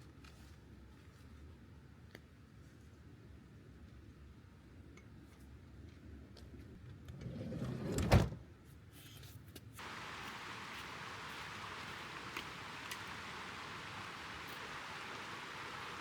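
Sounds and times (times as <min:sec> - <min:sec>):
steady hiss: 0:09.8 - 0:16.0.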